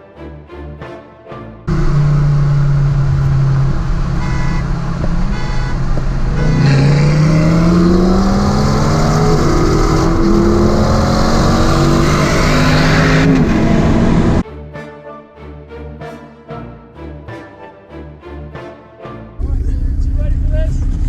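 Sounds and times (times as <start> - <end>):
sports car engine accelerating: 1.7 - 14.4.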